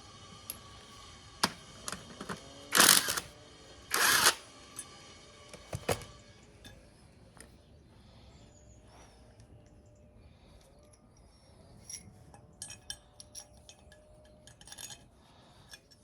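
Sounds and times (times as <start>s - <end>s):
metal parts and tools clinking: 10.8s - 16.0s.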